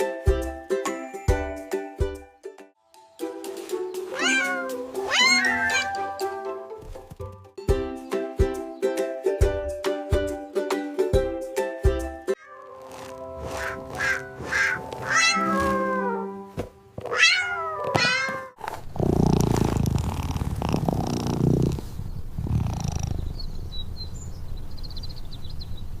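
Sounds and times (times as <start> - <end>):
light background music: 0.0 - 16.9
cat meowing: 4.1 - 6.1, 13.5 - 16.4, 17.1 - 18.6.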